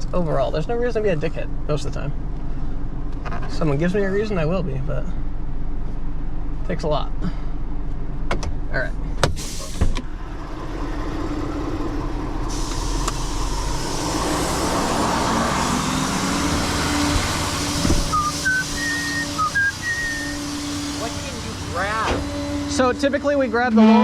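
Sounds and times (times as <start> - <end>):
truck engine humming: 0.0 - 24.0
hiss: 9.4 - 9.9, 12.4 - 22.7
short high chirps: 18.1 - 21.1.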